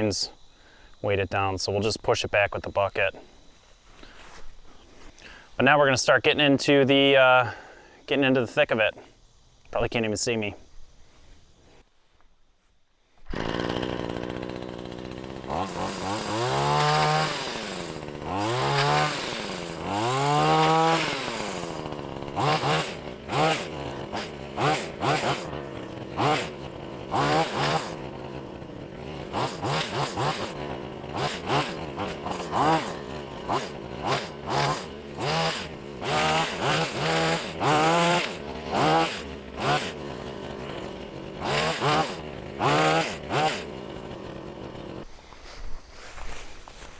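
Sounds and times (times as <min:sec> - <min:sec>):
hedge trimmer engine revving: 0:13.2 - 0:45.1.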